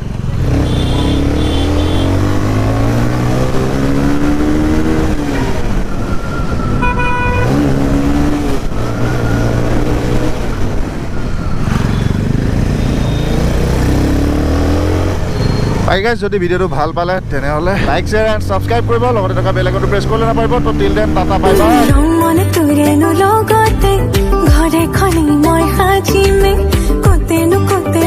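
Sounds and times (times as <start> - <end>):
motorcycle engine accelerating: 0.0 - 16.1, 17.2 - 22.0
vehicle horn beeping: 0.6 - 2.3, 6.8 - 7.6, 11.8 - 13.5.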